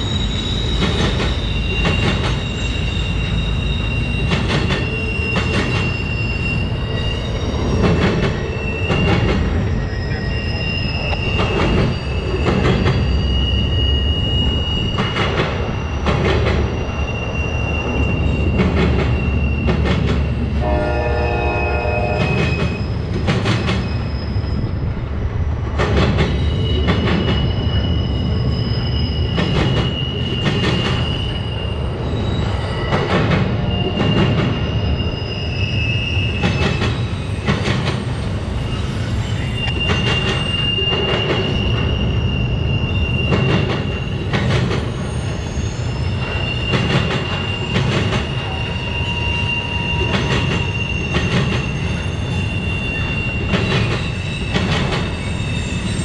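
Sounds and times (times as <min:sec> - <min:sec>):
train rumble: 0:00.0 - 0:56.0
train wheels squealing: 0:00.0 - 0:56.0
wheels clacking on rail joints: 0:00.6 - 0:10.2, 0:11.0 - 0:13.2, 0:22.0 - 0:24.1, 0:25.7 - 0:28.0.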